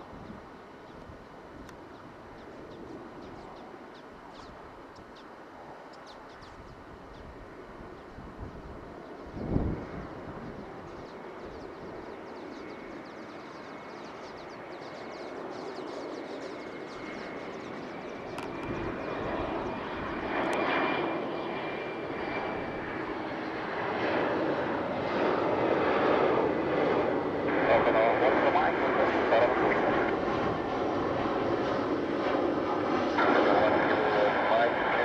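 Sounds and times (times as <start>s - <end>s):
jet engines whining: 8.6s - 35.0s.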